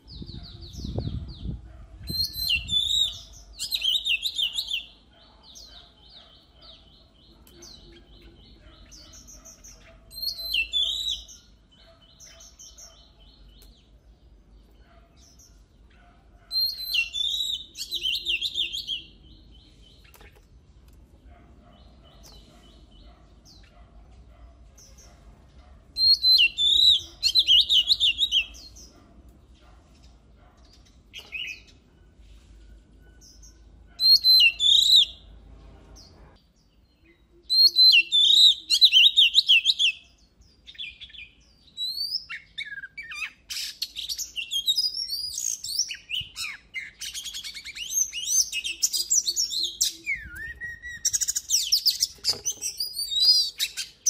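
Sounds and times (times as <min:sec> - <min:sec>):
magpie-robin singing: 0:00.0 - 0:20.4, 0:21.3 - 0:31.9, 0:33.1 - 0:35.4, 0:36.8 - 0:54.0.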